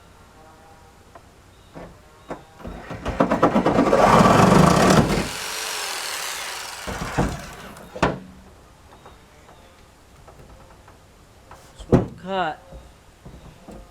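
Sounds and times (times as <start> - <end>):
jigsaw chattering on sheet metal: 3.3 - 8.0.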